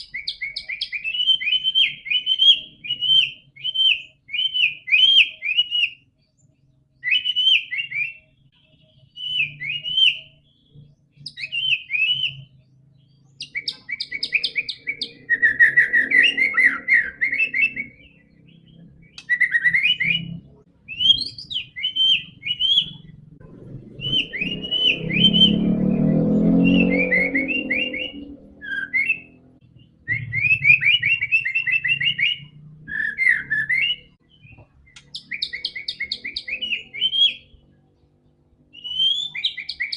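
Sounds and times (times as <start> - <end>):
bird singing whistled phrases: 0.0 - 6.2, 7.0 - 12.7, 13.3 - 23.2, 23.9 - 37.6, 38.7 - 39.9
low rumble: 23.0 - 28.7.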